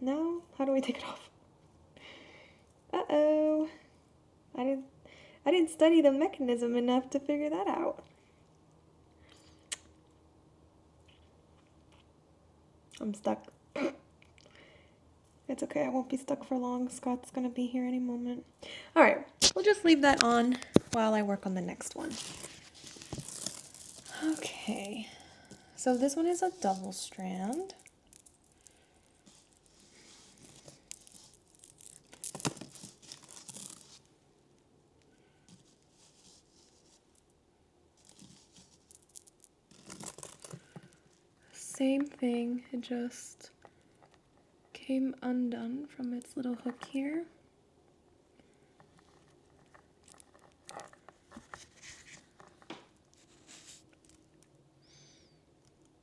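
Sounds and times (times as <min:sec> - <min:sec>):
soft rustling: 0:19.5 - 0:34.3, 0:35.2 - 0:42.2, 0:48.7 - 0:54.4
necklace beads clicking: 0:21.9 - 0:34.1, 0:38.0 - 0:41.1.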